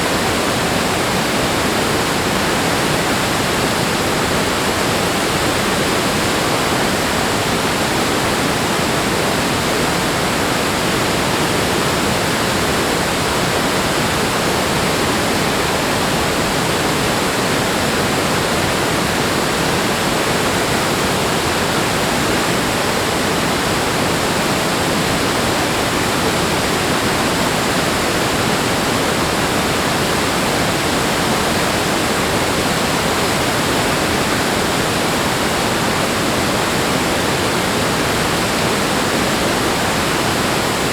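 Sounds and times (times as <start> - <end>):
rushing water roar: 0.0 - 40.9.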